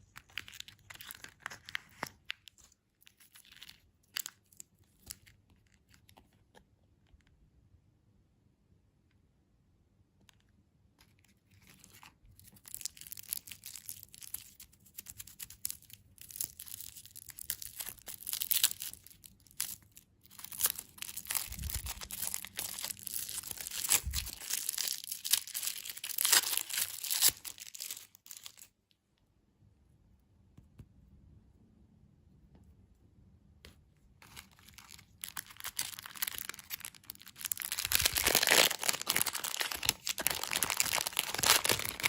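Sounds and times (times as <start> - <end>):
candy wrapper crackling and tearing: 0.0 - 6.6, 11.0 - 28.8, 34.2 - 42.0.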